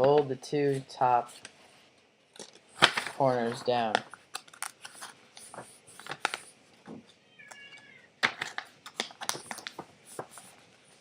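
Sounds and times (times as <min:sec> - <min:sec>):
paper folding and crinkling: 0:02.7 - 0:07.1, 0:08.2 - 0:11.0.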